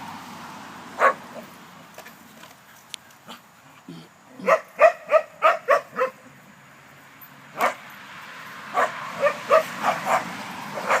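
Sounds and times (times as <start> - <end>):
dog barking: 1.0 - 1.4, 4.4 - 6.2, 7.6 - 7.8, 8.7 - 11.0.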